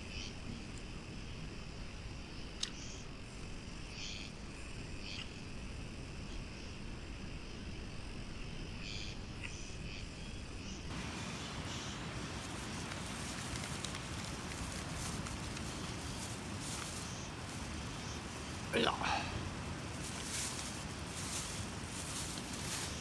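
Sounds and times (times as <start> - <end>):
insects chirping: 0.0 - 23.0
steady hiss with crackles: 10.9 - 23.0.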